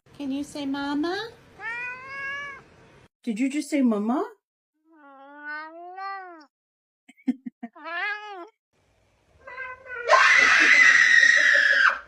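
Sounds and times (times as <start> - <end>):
cat yowling: 1.6 - 2.6, 4.9 - 6.5, 7.8 - 8.5, 9.4 - 12.0
cat meowing: 1.6 - 2.7, 4.9 - 6.5, 7.8 - 8.5, 9.4 - 10.4.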